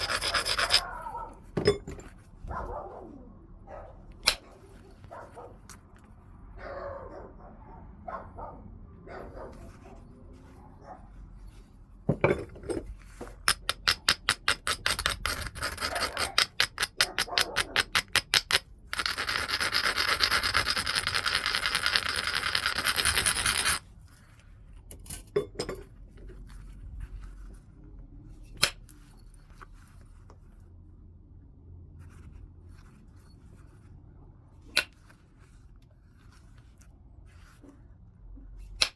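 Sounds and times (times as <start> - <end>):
stone clicking on stone: 0.0 - 0.9, 13.5 - 23.8
scraping strokes on stone edge: 0.0 - 1.2, 13.4 - 23.8
stone grinding: 0.0 - 2.1, 12.1 - 23.8.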